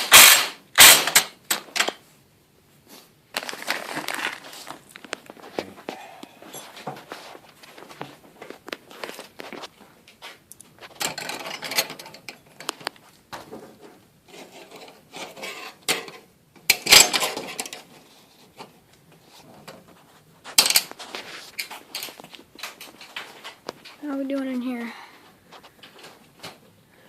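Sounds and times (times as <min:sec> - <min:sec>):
tools rubbing and scraping: 0:05.8 - 0:08.0, 0:13.7 - 0:15.9.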